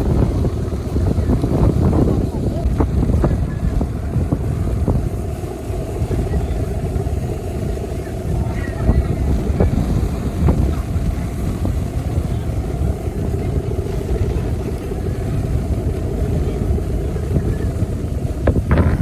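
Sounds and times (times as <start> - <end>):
faint steady hum: 0.0 - 19.0
wind buffeting microphone: 0.0 - 19.0.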